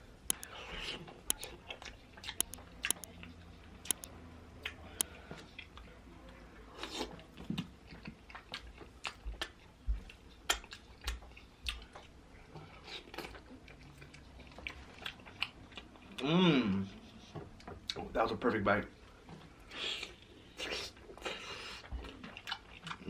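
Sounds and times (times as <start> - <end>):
sharp clicks: 2.4 - 3.1.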